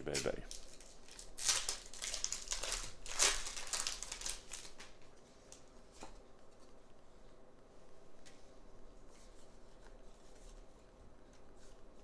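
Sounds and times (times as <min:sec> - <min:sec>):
foil wrapper rustling: 0:00.0 - 0:05.6.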